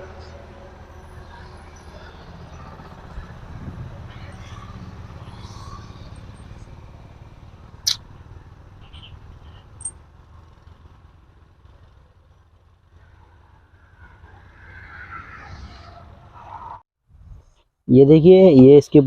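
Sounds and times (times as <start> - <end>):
low machine rumble: 0.0 - 14.6
sharp metal clink: 9.7 - 10.0.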